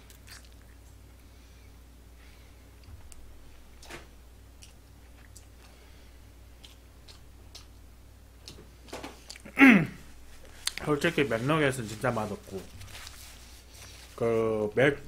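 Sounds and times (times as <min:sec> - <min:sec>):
person chewing: 0:00.0 - 0:01.2, 0:04.6 - 0:07.8, 0:08.4 - 0:09.6, 0:10.4 - 0:10.9
steady low hum: 0:00.0 - 0:15.0
mouth smacking clicks: 0:06.6 - 0:07.8.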